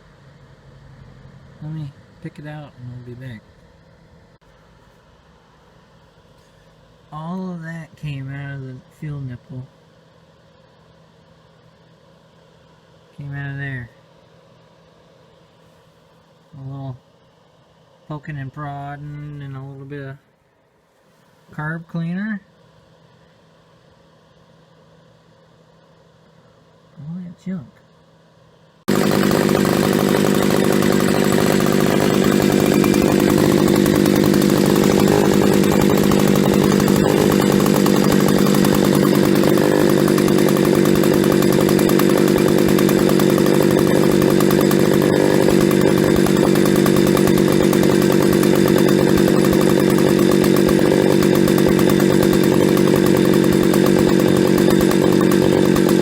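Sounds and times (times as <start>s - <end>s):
two-stroke chainsaw running: 28.9s - 56.0s.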